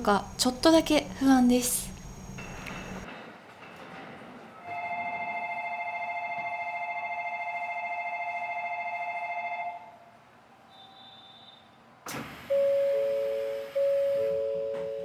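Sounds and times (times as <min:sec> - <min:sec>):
electronic train departure bell: 0:00.0 - 0:03.0, 0:04.7 - 0:09.9, 0:12.5 - 0:15.0.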